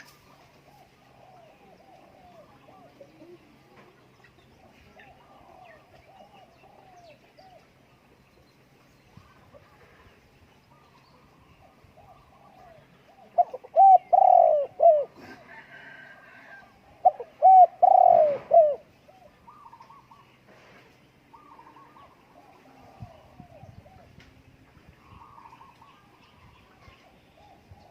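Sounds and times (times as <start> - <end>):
dove cooing: 0.0 - 3.7, 4.6 - 7.7, 10.7 - 20.3, 21.3 - 24.2, 25.0 - 27.9
faint chirping of small birds: 0.0 - 27.9.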